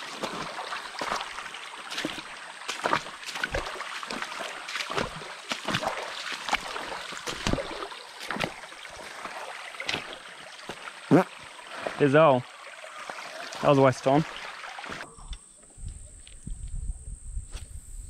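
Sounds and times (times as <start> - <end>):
water splashing around kayak: 0.0 - 15.0.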